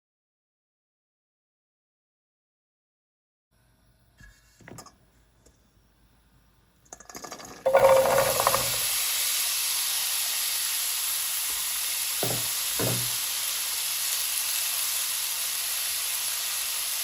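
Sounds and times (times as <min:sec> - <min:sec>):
food sizzling in oiled pan: 0:07.7 - 0:17.0.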